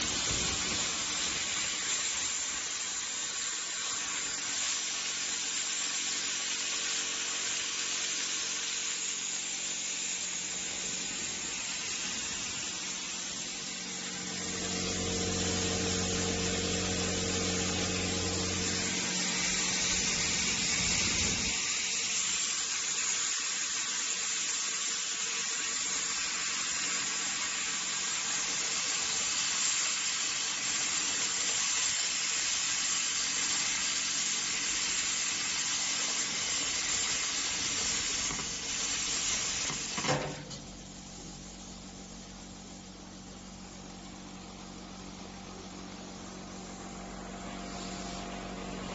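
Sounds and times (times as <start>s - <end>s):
plasma cutter hissing: 0.0s - 48.9s
low hum: 13.4s - 21.6s, 44.4s - 48.9s.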